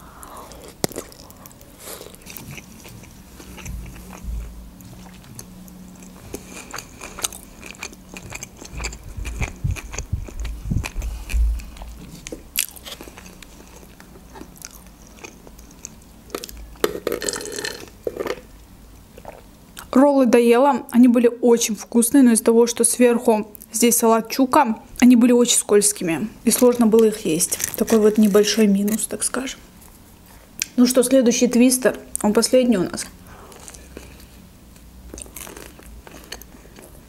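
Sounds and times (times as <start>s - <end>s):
chewing with wet mouth clicks: 4.8s - 16.6s.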